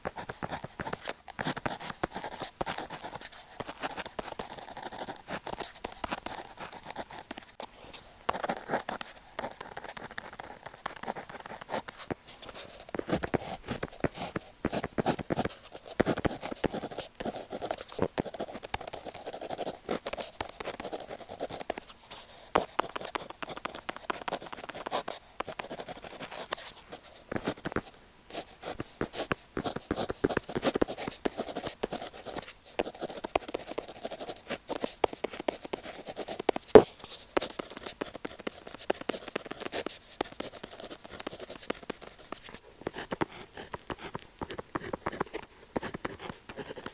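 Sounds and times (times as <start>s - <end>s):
pen scratching on paper: 0.0s - 46.9s
pen tapping on paper: 8.3s - 12.2s, 12.9s - 21.9s, 22.6s - 26.7s, 28.6s - 46.9s.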